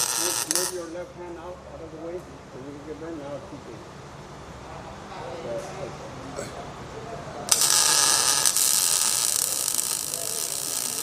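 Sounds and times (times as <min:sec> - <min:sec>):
welder arcing hiss: 0:07.5 - 0:11.0.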